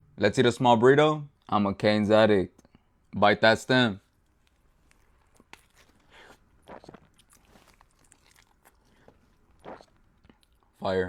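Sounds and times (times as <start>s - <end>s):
person chewing food: 4.0s - 10.8s.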